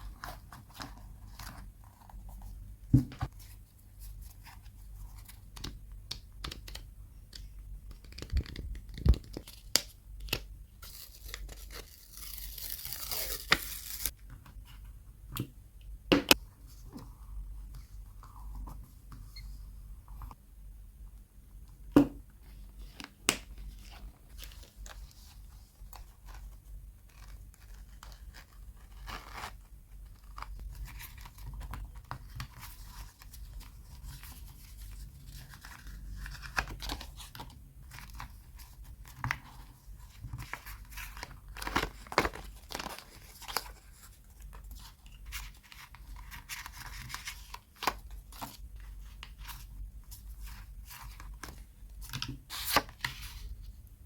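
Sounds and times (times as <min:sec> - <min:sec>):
paper rustling and tearing: 0:10.8 - 0:14.1.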